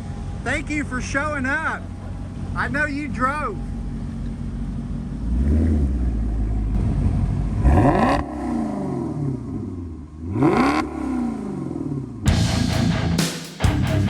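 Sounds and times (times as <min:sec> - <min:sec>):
car engine revving: 0:03.6 - 0:14.0.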